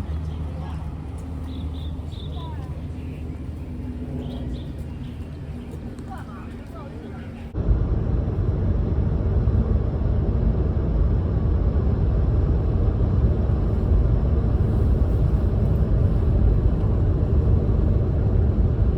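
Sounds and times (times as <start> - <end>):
loud low rumble: 6.9 - 18.9.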